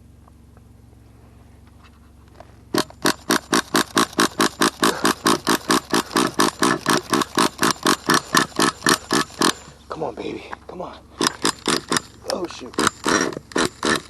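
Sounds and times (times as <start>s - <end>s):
nitro engine cranking: 2.3s - 10.0s, 10.6s - 14.0s.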